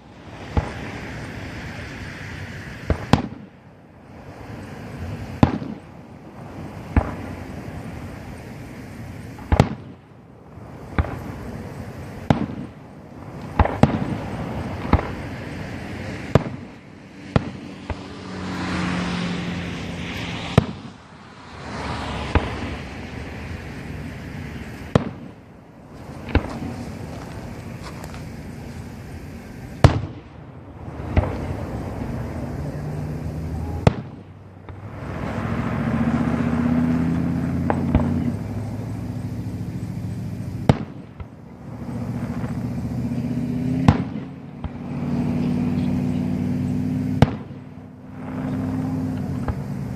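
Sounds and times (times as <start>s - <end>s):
hissing crackle of fireworks: 0.0s - 49.9s
firework shell bursts: 0.2s - 3.6s, 4.2s - 10.1s, 33.2s - 39.1s, 43.8s - 45.1s.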